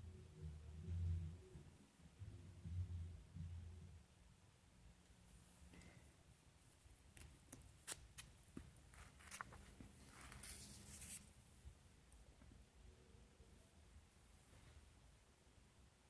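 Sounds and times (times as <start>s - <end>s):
page turning swish: 9.0s - 11.2s.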